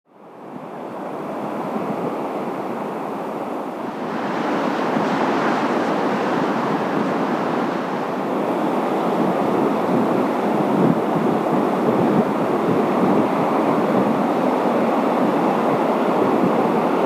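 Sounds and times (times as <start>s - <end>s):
wind buffeting microphone: 0.5s - 17.0s
surf breaking against a seawall: 3.8s - 17.0s.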